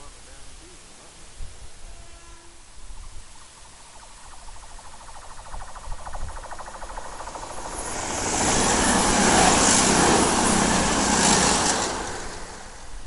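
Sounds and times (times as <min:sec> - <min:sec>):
train passing: 0:04.0 - 0:13.0.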